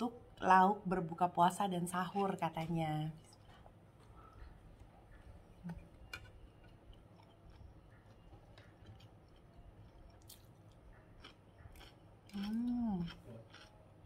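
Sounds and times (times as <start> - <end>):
faint chewing: 2.6 - 14.0.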